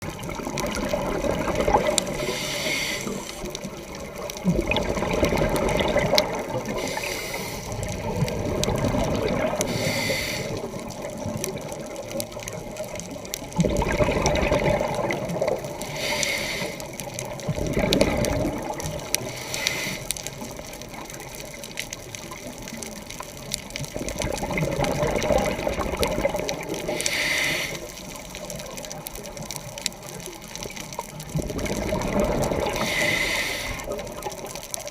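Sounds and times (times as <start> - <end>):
diver exhaling bubbles underwater: 0.0 - 10.9, 13.6 - 15.9, 17.3 - 19.3, 24.0 - 28.0, 31.3 - 34.5
regulator inhalation hiss: 2.2 - 3.5, 6.7 - 7.8, 9.6 - 10.7, 15.8 - 16.9, 19.2 - 20.1, 26.9 - 27.9, 32.8 - 33.9.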